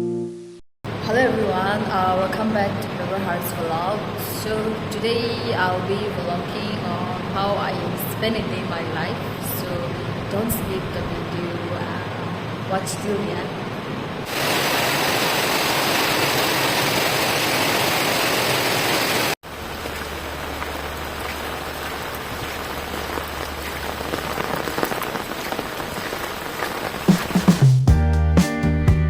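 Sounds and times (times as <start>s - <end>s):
steady rain falling: 0.9s - 27.7s
raindrops ticking: 19.5s - 27.7s.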